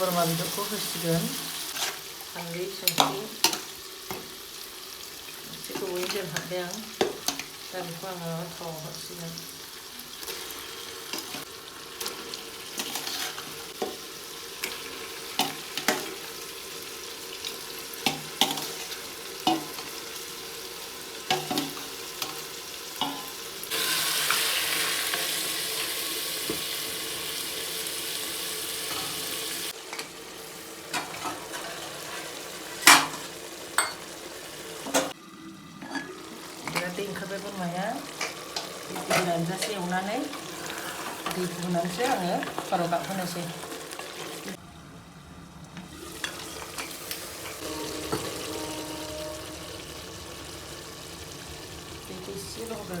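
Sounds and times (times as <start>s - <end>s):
meat sizzling in a pan: 0.0s - 44.6s, 45.9s - 53.0s
spoon scraping a pan: 1.7s - 2.2s, 11.1s - 14.0s, 30.9s - 34.1s, 38.1s - 44.3s.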